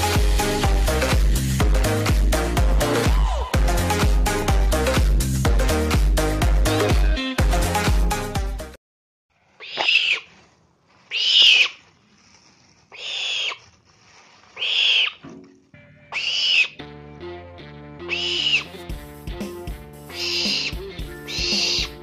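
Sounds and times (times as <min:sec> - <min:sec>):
owl screeching: 0:09.6 - 0:10.4, 0:11.1 - 0:11.8, 0:12.9 - 0:13.7, 0:14.6 - 0:15.2, 0:16.1 - 0:16.8, 0:18.1 - 0:18.8, 0:20.1 - 0:22.0.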